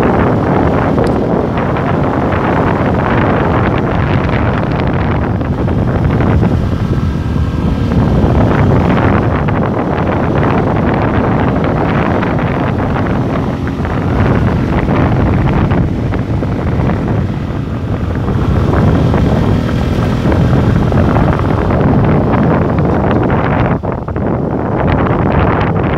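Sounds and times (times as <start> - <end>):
motorcycle engine: 0.0 - 25.9
road noise: 0.0 - 25.9
wind buffeting microphone: 0.0 - 25.9.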